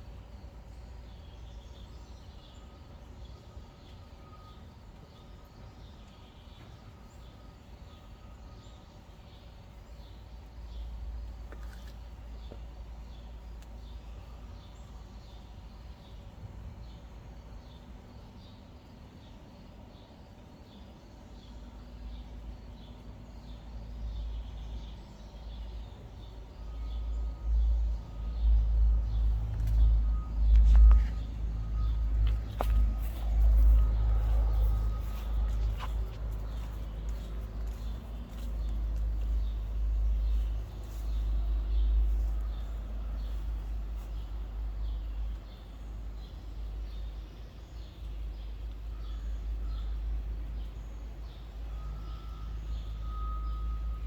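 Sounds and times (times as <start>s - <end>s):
bird chirping: 0.2s - 54.0s
heavy vehicle engine rumbling: 24.0s - 54.0s.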